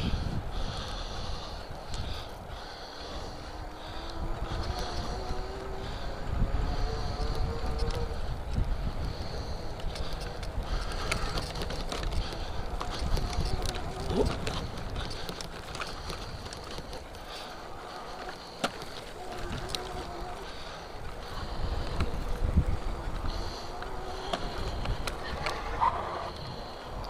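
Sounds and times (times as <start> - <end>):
wind buffeting microphone: 0.0 - 27.0
electric motor whine: 3.1 - 8.5, 17.6 - 26.8.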